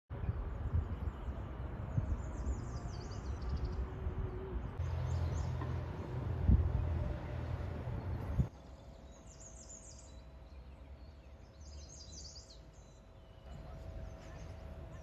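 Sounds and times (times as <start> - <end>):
steady low rumble: 0.1 - 9.4.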